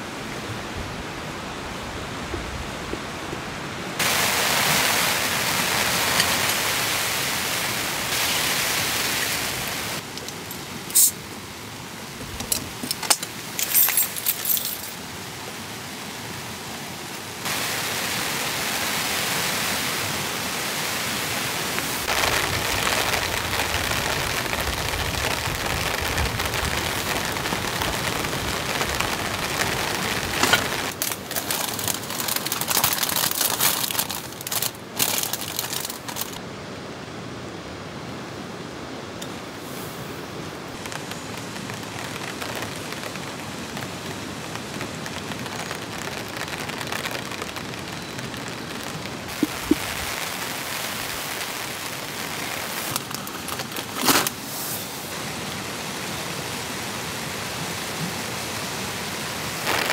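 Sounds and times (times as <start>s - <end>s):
heavy rain falling: 0.0s - 36.5s, 39.4s - 59.9s
clinking: 12.5s - 14.9s
rustling: 25.2s - 36.4s.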